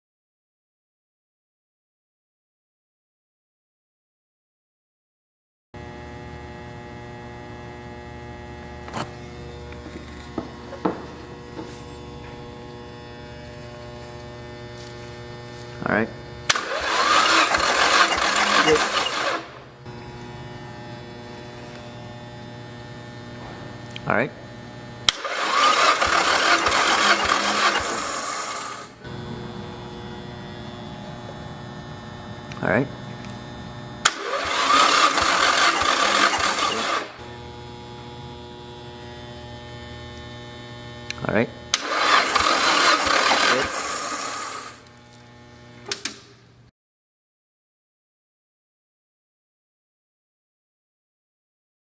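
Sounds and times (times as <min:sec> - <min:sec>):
electrical mains hum: 0:05.8 - 0:46.7
engine cranking without firing: 0:16.5 - 0:19.7, 0:25.1 - 0:31.5, 0:34.0 - 0:37.2, 0:41.7 - 0:44.9
low steady hum: 0:28.9 - 0:34.1.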